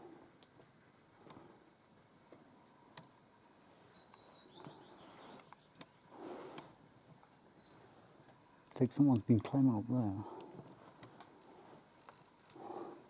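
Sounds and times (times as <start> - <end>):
songbird singing with trill: 2.8 - 10.0.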